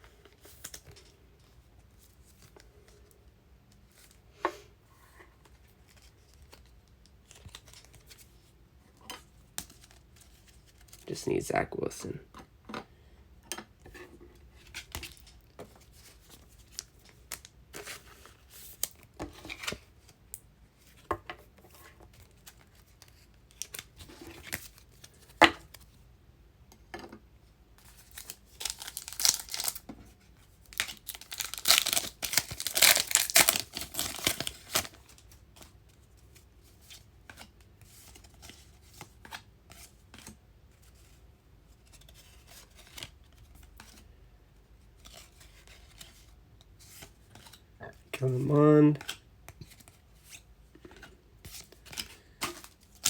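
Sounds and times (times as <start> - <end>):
pack wrapper tearing: 28.0 - 29.8, 30.7 - 35.2.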